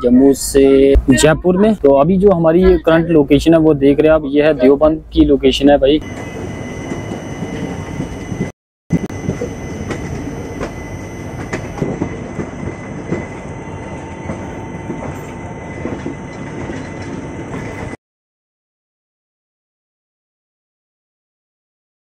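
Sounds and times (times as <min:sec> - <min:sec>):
train wheels rumbling on rail: 0:06.0 - 0:18.0.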